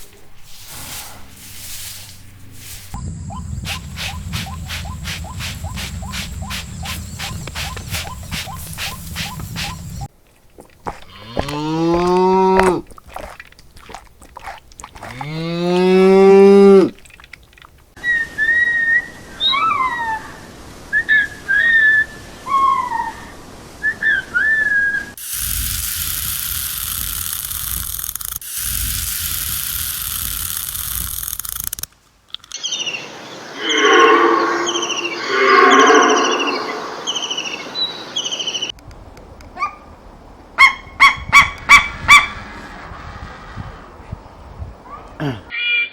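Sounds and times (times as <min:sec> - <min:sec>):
steady hiss: 0:00.0 - 0:10.1, 0:25.2 - 0:32.2
high gliding chirps: 0:03.0 - 0:10.1, 0:32.8 - 0:38.7
cow mooing: 0:11.1 - 0:12.8, 0:15.1 - 0:17.0, 0:33.6 - 0:36.9.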